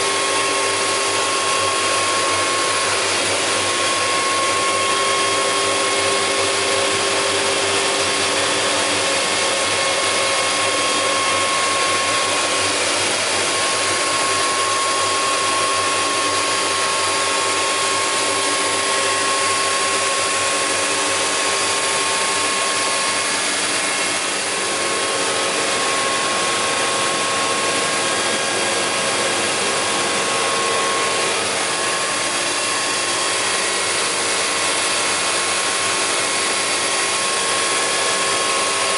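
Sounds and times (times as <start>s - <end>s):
planer machine running: 0.0s - 38.9s.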